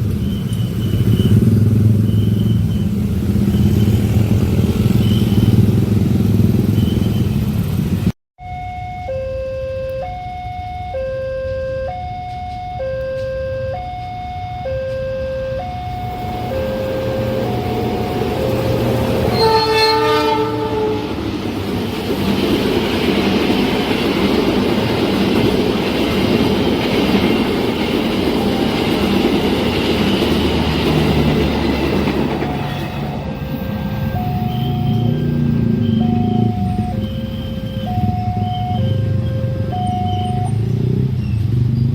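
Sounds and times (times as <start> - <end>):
two-tone level-crossing alarm: 8.4 - 20.9, 32.0 - 40.7
train horn: 14.7 - 21.3
train wheels rumbling on rails: 15.9 - 41.7.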